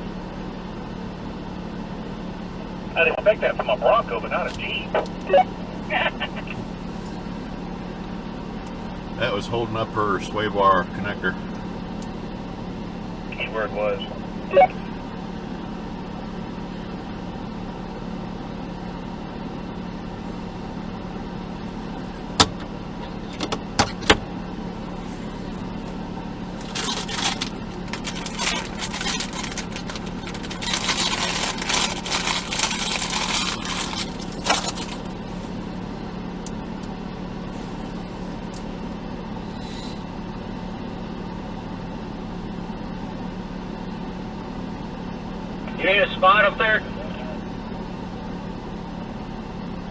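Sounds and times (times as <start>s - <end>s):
vehicle engine idling: 0.0s - 49.9s
rough scraping and crunching: 26.5s - 35.5s.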